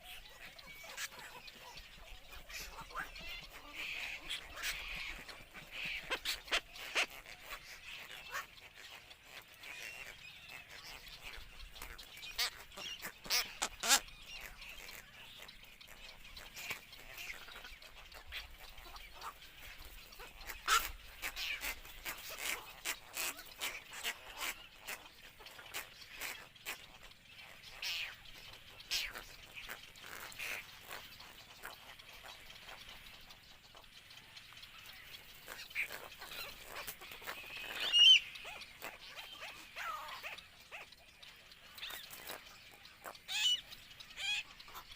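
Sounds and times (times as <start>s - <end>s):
herons calling: 0.0s - 44.9s.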